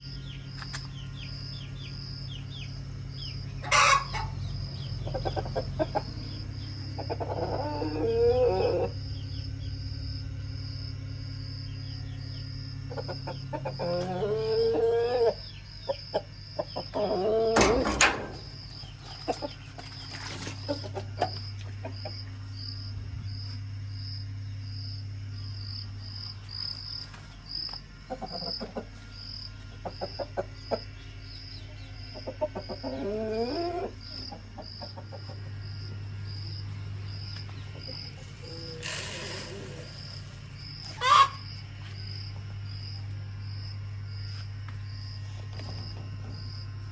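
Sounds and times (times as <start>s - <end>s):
crickets chirping: 0.0s - 46.9s
low hum: 0.0s - 46.9s
chickens clucking: 0.5s - 9.3s, 12.7s - 22.7s, 28.0s - 40.2s, 40.8s - 41.6s.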